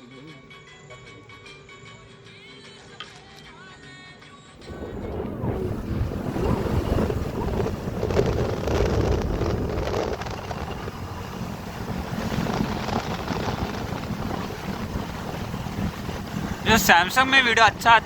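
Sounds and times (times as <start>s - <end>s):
wind buffeting microphone: 4.6s - 18.0s.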